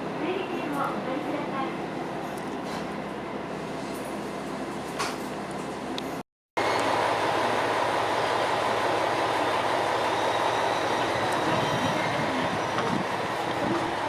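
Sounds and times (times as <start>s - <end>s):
diesel railcar engine: 0.0s - 14.0s
wheels on rails: 6.6s - 14.0s.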